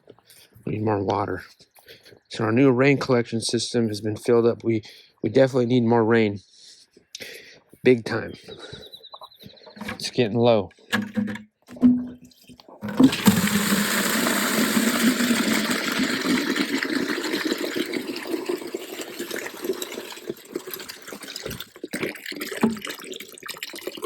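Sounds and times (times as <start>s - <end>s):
water gushing into a container: 12.8s - 24.0s.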